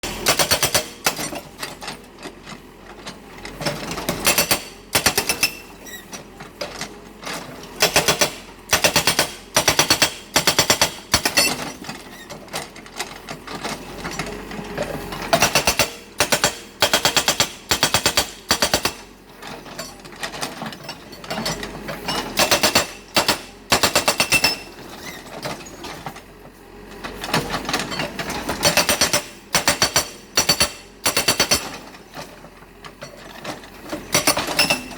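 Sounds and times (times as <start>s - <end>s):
hydraulic breaker hammering: 0.1s - 1.4s, 7.8s - 11.8s, 15.4s - 19.1s, 22.2s - 24.7s, 27.4s - 31.8s.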